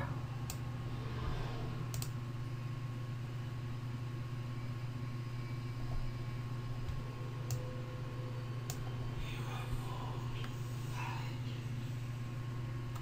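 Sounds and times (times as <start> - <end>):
low electrical hum: 0.0 - 13.0
computer mouse clicks: 1.9 - 2.2.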